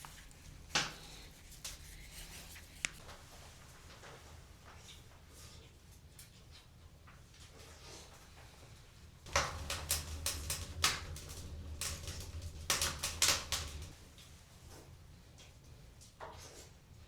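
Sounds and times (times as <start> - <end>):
sharp clicks and knocks: 9.3 - 13.9
low hum: 9.3 - 14.0.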